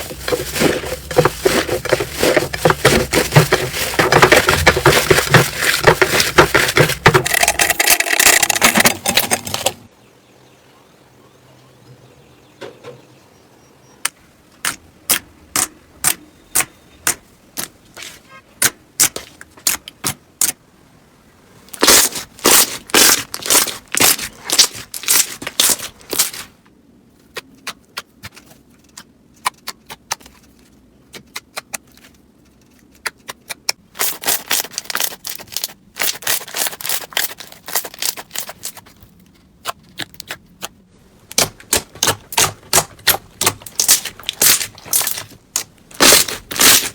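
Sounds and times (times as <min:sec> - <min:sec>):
slime popping and crackling: 0:21.8 - 0:26.4, 0:41.3 - 0:46.9.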